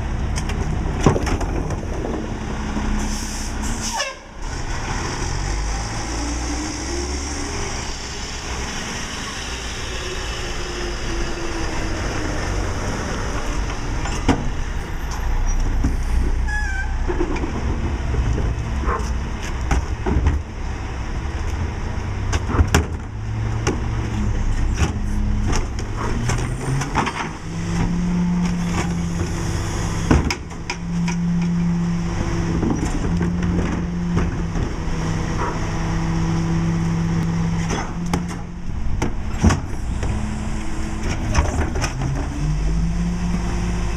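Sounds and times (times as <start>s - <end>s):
garbage truck engine humming: 4.6s - 43.9s.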